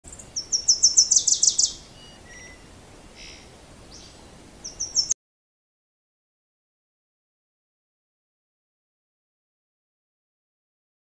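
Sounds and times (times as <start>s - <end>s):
bird chirping: 0.0s - 5.2s
soft bird calls: 0.1s - 5.2s.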